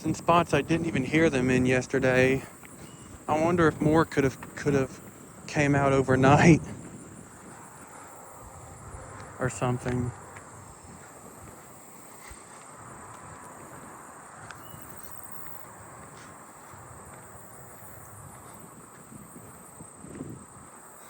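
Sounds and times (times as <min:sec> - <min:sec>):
katydids singing: 0:00.0 - 0:11.6
high-pitched insect trill: 0:00.0 - 0:21.0
small ticks: 0:06.9 - 0:21.0.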